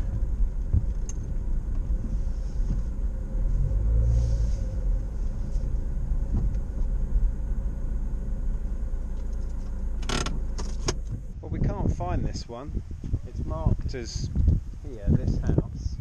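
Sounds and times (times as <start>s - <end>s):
road traffic rumble: 0.0s - 16.0s
car passing: 1.4s - 10.9s.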